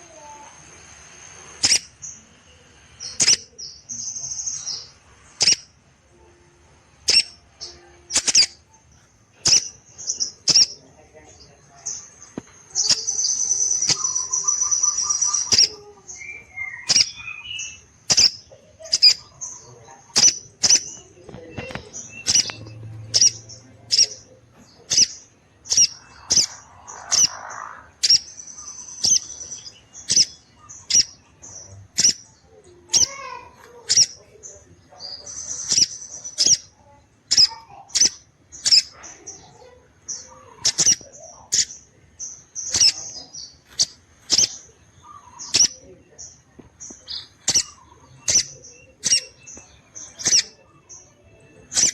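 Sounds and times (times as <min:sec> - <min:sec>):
bird sharp high chips: 0:01.6 - 0:01.9, 0:07.1 - 0:07.4, 0:08.1 - 0:08.6, 0:09.4 - 0:10.8, 0:16.8 - 0:19.3, 0:20.2 - 0:21.0, 0:21.6 - 0:24.2, 0:24.9 - 0:31.2, 0:32.9 - 0:34.2
jay giving sharp high calls: 0:05.4 - 0:05.6, 0:07.1 - 0:07.4, 0:10.4 - 0:10.8, 0:16.8 - 0:21.0, 0:22.1 - 0:24.3, 0:24.9 - 0:31.2, 0:31.9 - 0:32.2, 0:32.9 - 0:34.2.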